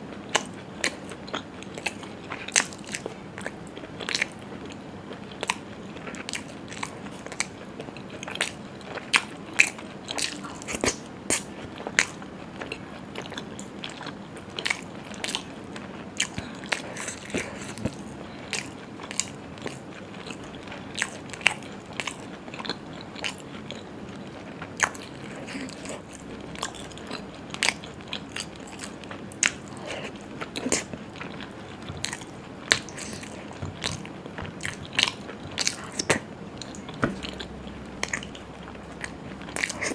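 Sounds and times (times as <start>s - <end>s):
person biting and chewing: 24.8s - 39.9s.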